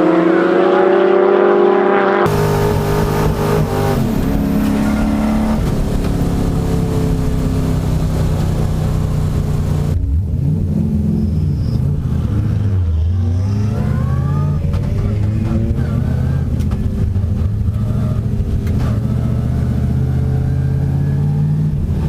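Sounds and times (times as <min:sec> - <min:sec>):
car engines revving high: 0:00.0 - 0:22.0.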